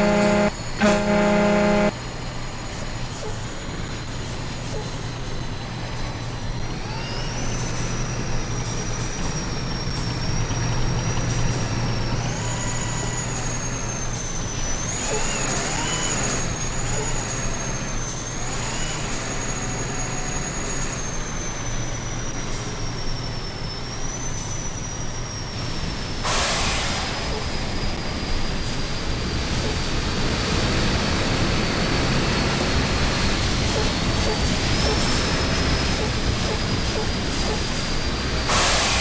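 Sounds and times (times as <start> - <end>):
high-pitched whine: 0.0 - 2.0
truck engine and road drone: 0.0 - 39.0
burst of hiss: 38.5 - 39.0.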